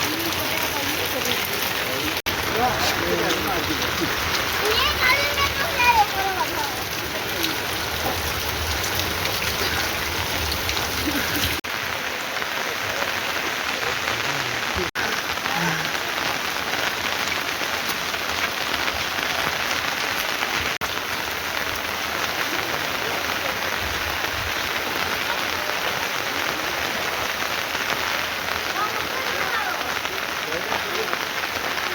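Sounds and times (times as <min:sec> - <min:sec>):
heavy rain falling: 0:00.0 - 0:31.9.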